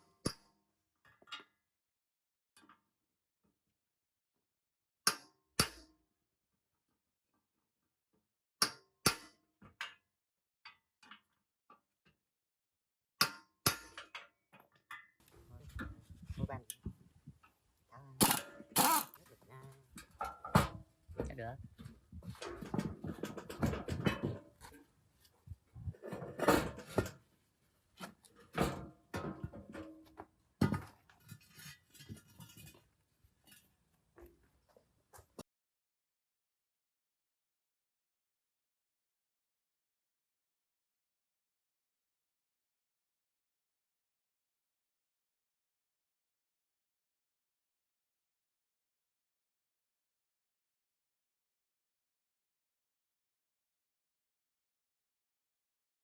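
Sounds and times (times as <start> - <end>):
metal-on-metal clanks: 18.2 - 19.2, 22.1 - 24.8, 25.8 - 27.2
tools and parts clattering: 22.2 - 24.9.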